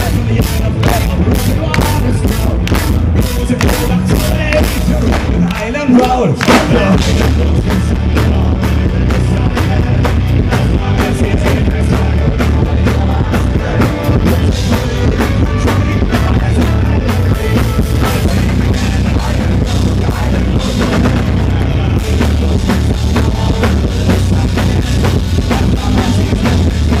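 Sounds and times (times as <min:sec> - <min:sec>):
drum kit fast beat: 0:00.0 - 0:27.0
folk-rock band playing live: 0:00.0 - 0:27.0
heavy bass: 0:00.0 - 0:27.0.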